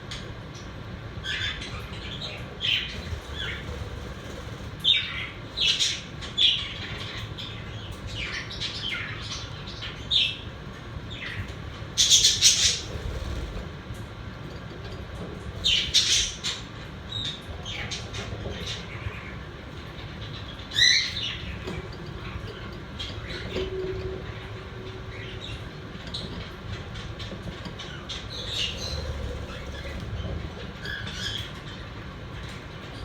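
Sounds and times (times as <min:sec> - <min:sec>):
steady low hum: 0:00.0 - 0:33.0
budgerigars chirping: 0:02.1 - 0:06.0, 0:28.3 - 0:30.1.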